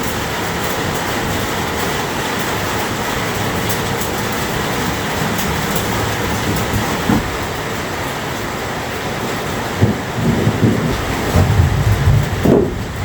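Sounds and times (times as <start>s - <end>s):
heavy rain: 0.0s - 13.0s
low rumble: 10.2s - 13.0s.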